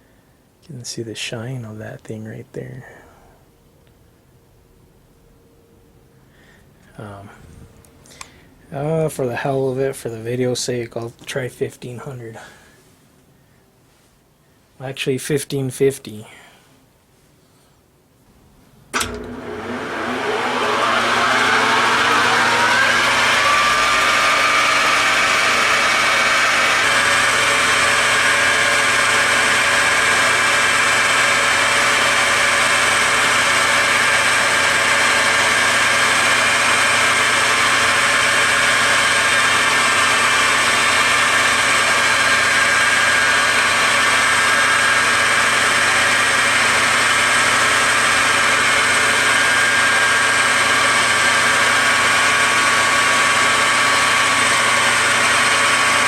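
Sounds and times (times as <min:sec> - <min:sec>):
metal lathe whine: 0:19.0 - 0:56.0.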